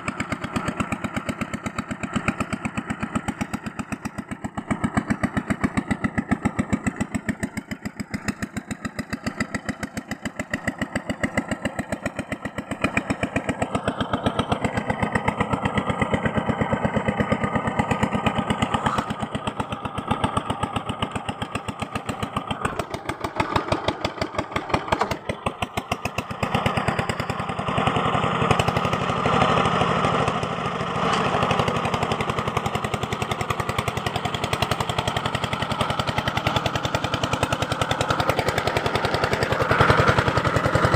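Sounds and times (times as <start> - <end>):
small motor tool pulsing: 18.6 - 19.2.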